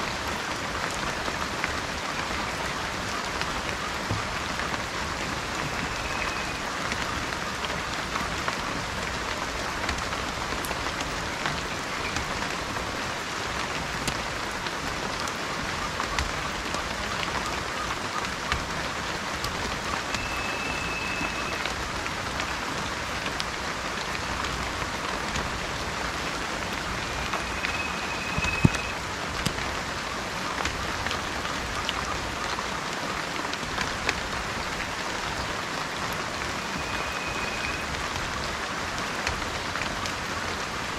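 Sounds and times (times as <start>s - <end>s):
steady rain falling: 0.0s - 40.9s
short high whistle: 20.2s - 21.7s, 27.1s - 29.0s, 36.6s - 37.9s.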